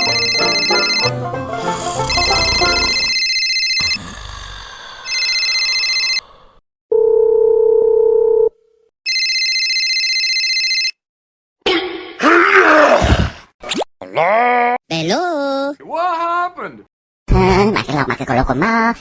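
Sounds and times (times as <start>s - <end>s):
telephone ringing: 0.0s - 1.4s, 2.1s - 3.8s, 9.1s - 11.0s
steady dial tone: 6.9s - 8.5s.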